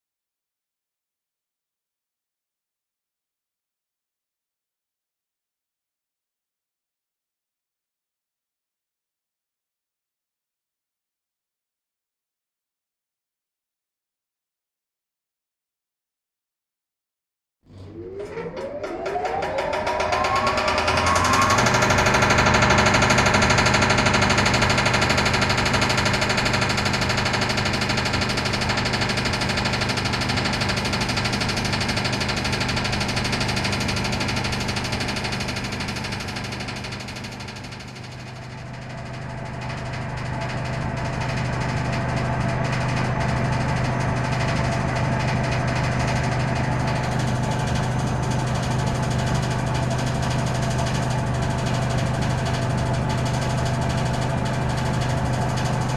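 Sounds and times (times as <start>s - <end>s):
wood chipper running: 17.7s - 55.9s.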